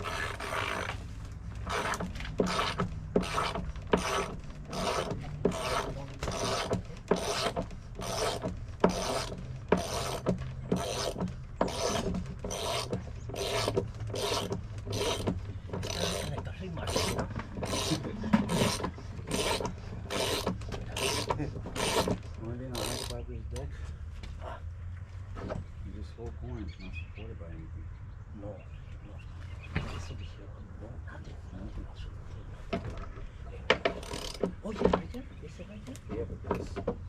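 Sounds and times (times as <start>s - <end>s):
hand tool scraping strokes: 0.0s - 23.2s.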